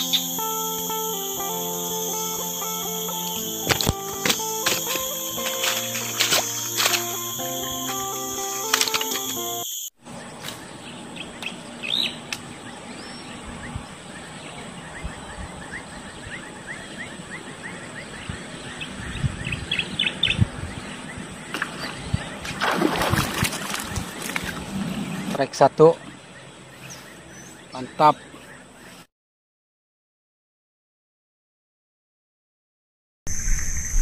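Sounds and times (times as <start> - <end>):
bird trills: 0.0 - 9.9
low outdoor hiss: 0.0 - 9.9
wild birds chirping: 0.0 - 29.1.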